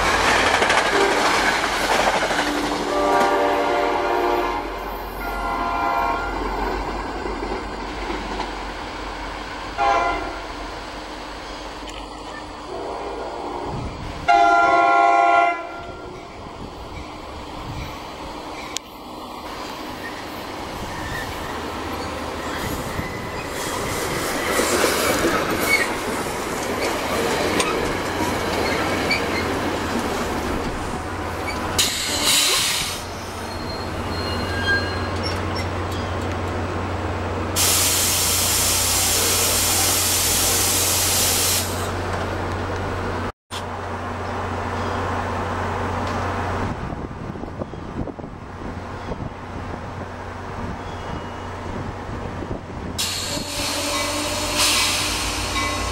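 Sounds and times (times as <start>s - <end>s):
train wheels squealing and rumbling: 0.0s - 3.7s, 10.4s - 14.3s, 15.8s - 36.6s, 47.3s - 49.4s, 50.4s - 55.9s
loud hiss of air: 19.6s - 25.2s, 31.7s - 33.4s, 37.6s - 42.0s, 53.0s - 55.9s.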